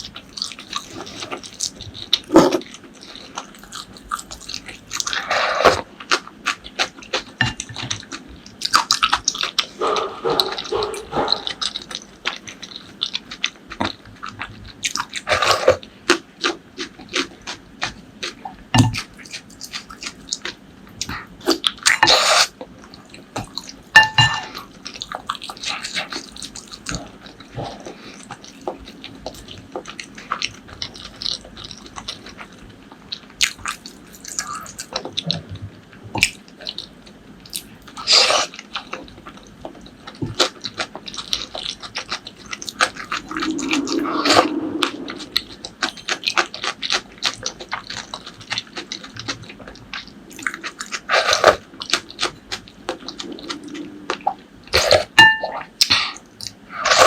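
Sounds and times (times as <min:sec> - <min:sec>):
wet chewing with mouth clicks: 0:00.0 - 0:57.0.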